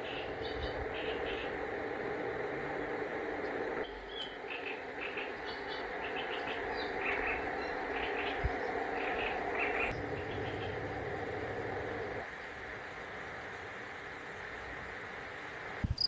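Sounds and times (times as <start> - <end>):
small birds chirping: 0.0 - 1.7, 3.9 - 11.0
open-air ambience hiss: 0.0 - 16.0.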